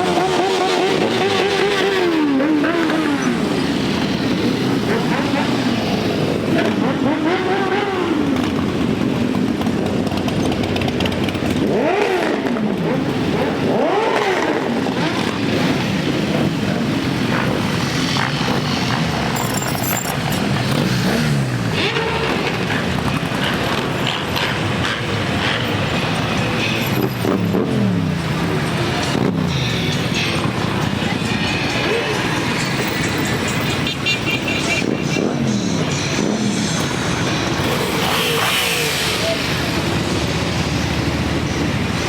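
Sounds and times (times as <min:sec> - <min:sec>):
motorcycles riding past revving: 0:35.3 - 0:42.0.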